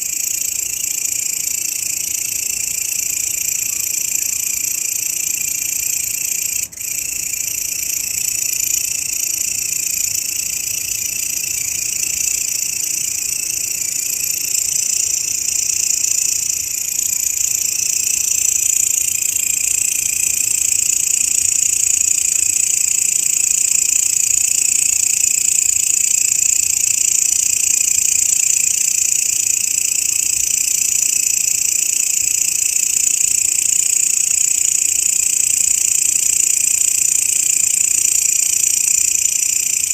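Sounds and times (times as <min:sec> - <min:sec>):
grasshoppers buzzing: 0:05.2 - 0:25.2.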